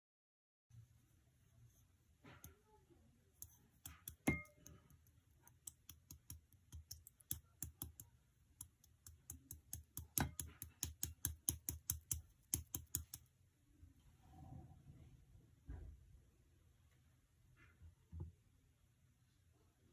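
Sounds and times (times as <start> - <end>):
small sharp clicks and taps: 3.4 - 13.3.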